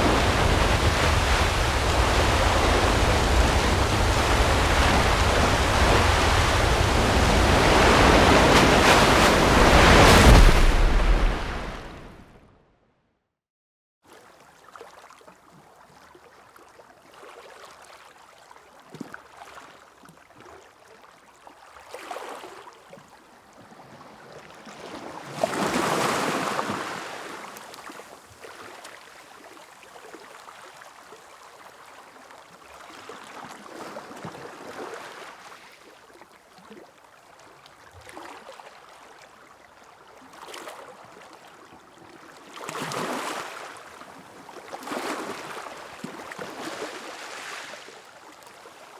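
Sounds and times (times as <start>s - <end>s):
sea waves washing onto beach: 0.0s - 12.4s, 25.3s - 28.0s, 42.6s - 48.9s.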